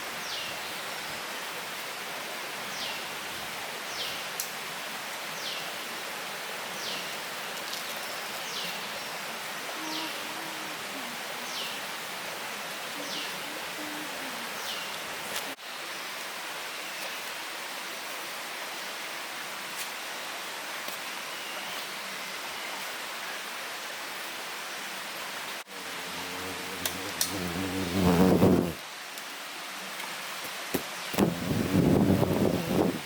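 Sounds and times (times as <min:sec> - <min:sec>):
steady rushing hiss: 0:24.2 - 0:33.0.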